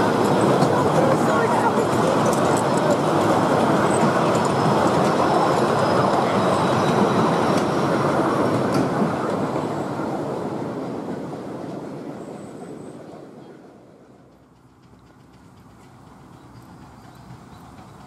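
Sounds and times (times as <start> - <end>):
train wheels rolling on rails: 0.0 - 18.0.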